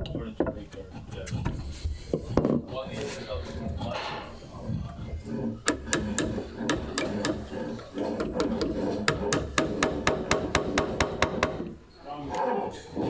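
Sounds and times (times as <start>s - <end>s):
sharp hammer taps: 5.7s - 11.9s.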